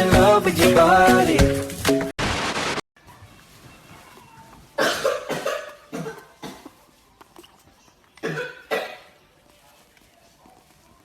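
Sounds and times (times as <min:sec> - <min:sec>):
cough-like hacks: 0:04.8 - 0:06.8, 0:08.2 - 0:09.2.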